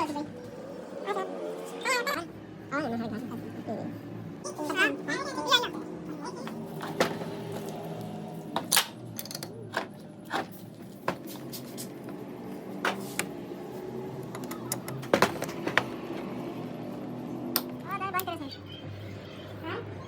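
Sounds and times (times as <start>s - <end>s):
metal tools clinking: 8.7s - 9.9s.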